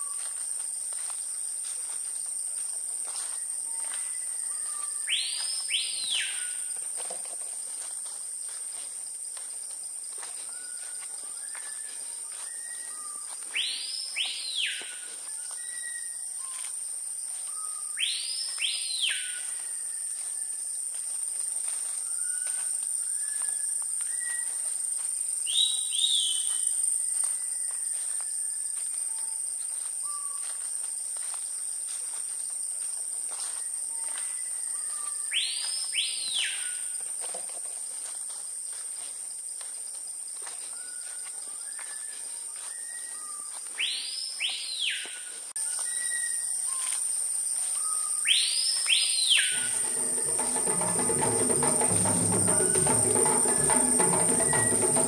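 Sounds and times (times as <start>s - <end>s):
high-pitched insect chorus: 0.0s - 55.0s
whistled bird call sweeping: 4.1s - 6.7s, 10.5s - 16.7s, 17.5s - 20.1s, 25.5s - 26.7s, 34.4s - 36.9s, 41.8s - 46.9s, 47.8s - 51.1s, 51.7s - 55.0s.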